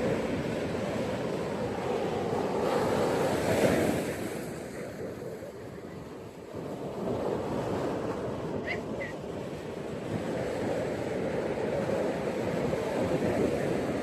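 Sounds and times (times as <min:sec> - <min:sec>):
ocean waves breaking on beach: 0:00.0 - 0:14.0
wind on microphone: 0:00.0 - 0:14.0.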